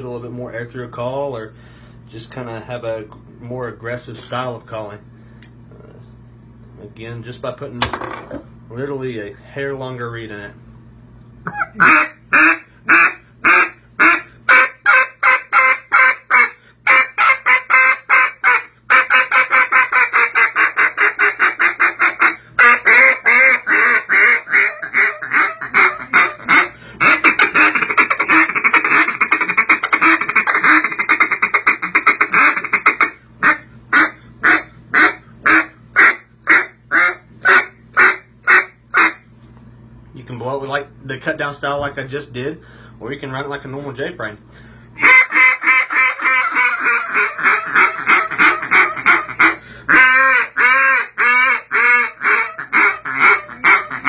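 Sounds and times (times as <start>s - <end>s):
duck call quacking: 11.5s - 39.2s, 45.0s - 54.0s.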